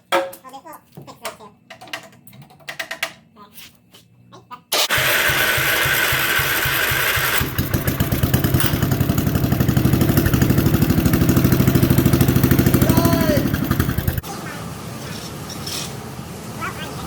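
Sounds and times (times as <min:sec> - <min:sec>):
engine cranking and starting: 0:04.8 - 0:14.2.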